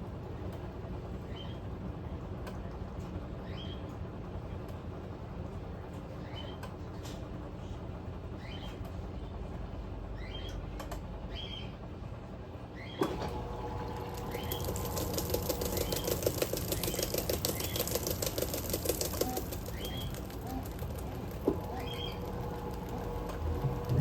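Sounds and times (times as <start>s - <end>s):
washing machine motor hum: 0.0s - 24.0s
washing machine click: 13.0s - 24.0s
rhythmic churning: 13.5s - 24.0s.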